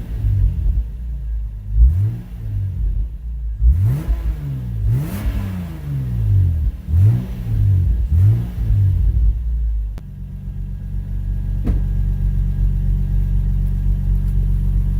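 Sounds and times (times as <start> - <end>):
car engine revving and idling: 0.0 - 14.9.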